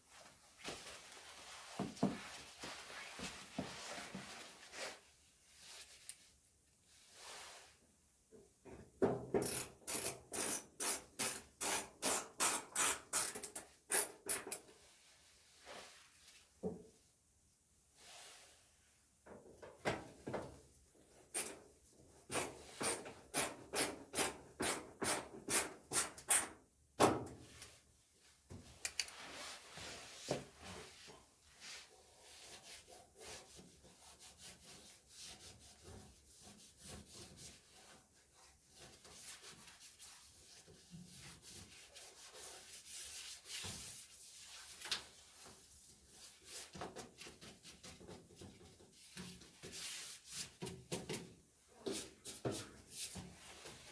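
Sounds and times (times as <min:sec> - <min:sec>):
rubbing strokes against surface: 0:29.2 - 0:48.2, 0:48.9 - 0:50.6.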